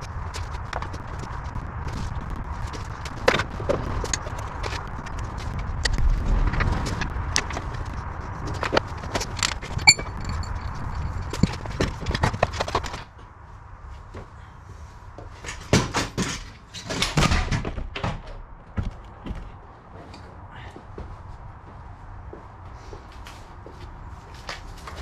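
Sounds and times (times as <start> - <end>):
steady background hum: 0.0 - 25.0
short metallic ring: 9.8 - 10.6.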